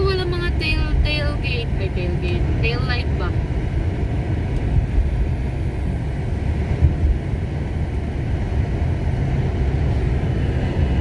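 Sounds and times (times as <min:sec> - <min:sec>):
wind buffeting microphone: 0:02.2 - 0:11.0.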